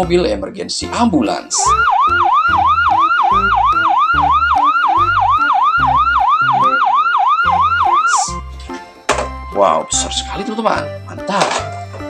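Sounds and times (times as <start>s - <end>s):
ambulance siren yelping: 1.6s - 8.5s.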